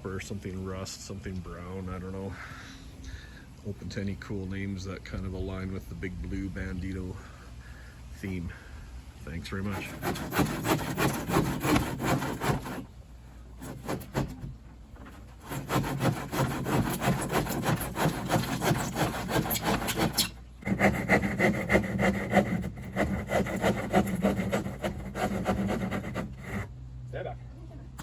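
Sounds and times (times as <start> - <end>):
saw cutting plywood: 9.5 - 13.0, 13.6 - 26.7.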